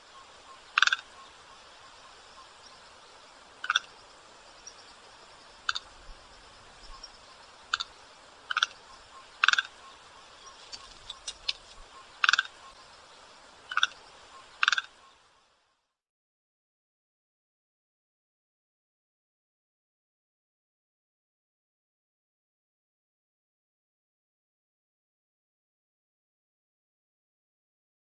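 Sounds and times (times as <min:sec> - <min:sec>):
white stork calling: 0:00.0 - 0:13.0, 0:13.6 - 0:15.2
faint background hiss: 0:00.0 - 0:16.0.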